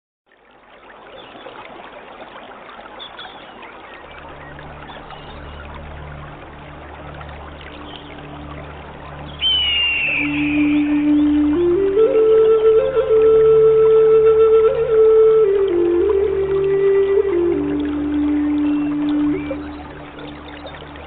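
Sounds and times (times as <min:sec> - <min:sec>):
trickling stream water: 0:00.3 - 0:21.0
low musical drone: 0:04.0 - 0:21.0
faint bird chirps: 0:09.2 - 0:11.4
loud high held note: 0:09.4 - 0:11.4.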